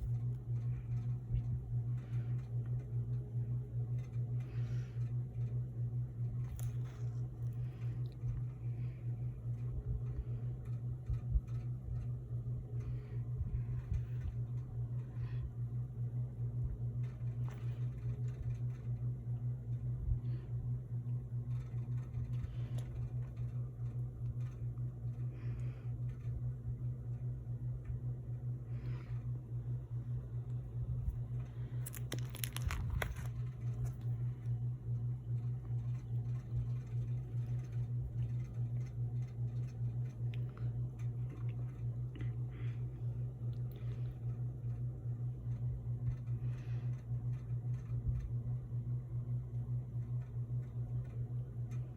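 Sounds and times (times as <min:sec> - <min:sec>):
steady low hum: 0:00.0 - 0:51.9
rustling: 0:30.9 - 0:38.8
items being handled: 0:31.1 - 0:34.6.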